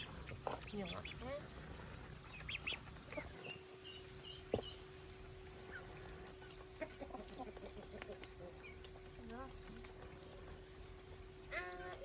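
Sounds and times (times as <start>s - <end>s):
chickens clucking: 0.0s - 12.0s
chicks peeping: 0.0s - 12.0s.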